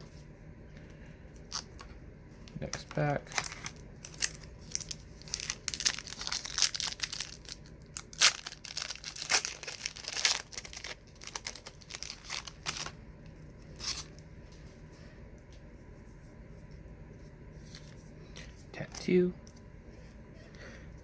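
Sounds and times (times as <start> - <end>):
wrapper crackling and crinkling: 2.6 - 13.0.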